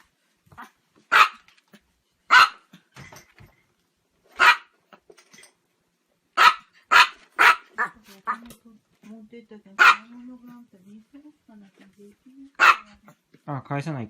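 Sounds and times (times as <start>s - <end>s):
dog barking: 0.6s - 1.5s, 2.3s - 2.7s, 4.4s - 4.7s, 6.4s - 8.4s, 9.8s - 10.2s, 12.6s - 13.1s.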